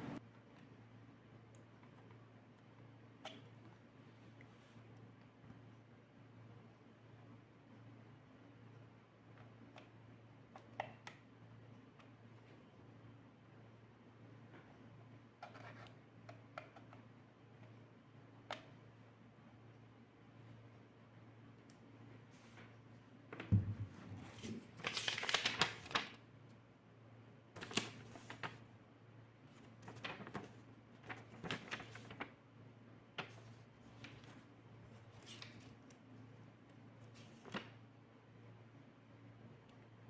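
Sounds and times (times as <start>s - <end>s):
handling thump: 23.5s - 24.3s.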